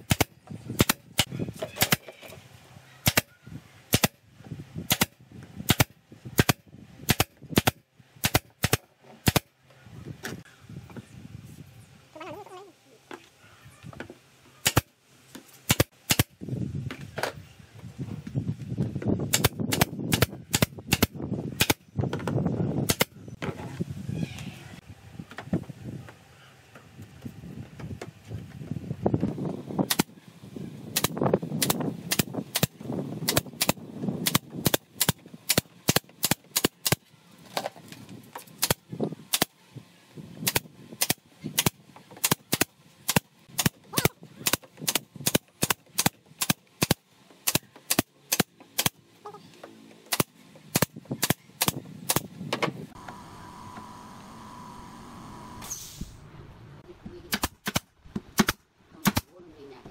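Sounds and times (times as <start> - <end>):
pneumatic nailer firing: 0.0 - 2.1, 3.0 - 3.3, 3.9 - 4.2, 4.9 - 9.5, 14.6 - 14.9, 15.7 - 16.4, 19.3 - 21.8, 22.8 - 23.2, 29.8 - 30.1, 30.9 - 37.1, 38.4 - 39.6, 40.4 - 49.0, 50.1 - 56.2, 57.3 - 59.3.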